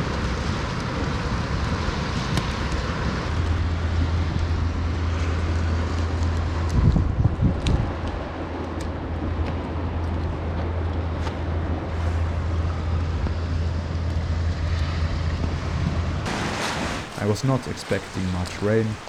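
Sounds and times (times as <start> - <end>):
rain falling: 0.0 - 19.0
wind rumble: 0.0 - 19.0
faint raindrop ticks: 4.3 - 11.4.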